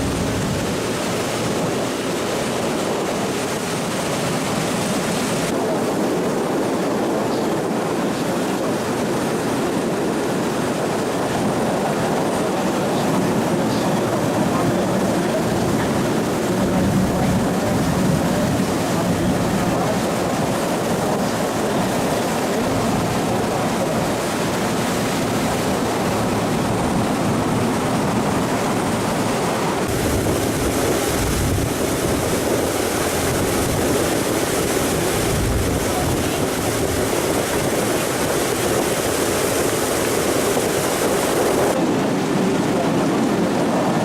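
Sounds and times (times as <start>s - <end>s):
water rushing along hull: 0.0s - 44.0s
wind buffeting microphone: 0.0s - 44.0s
boat motor running: 11.3s - 43.4s.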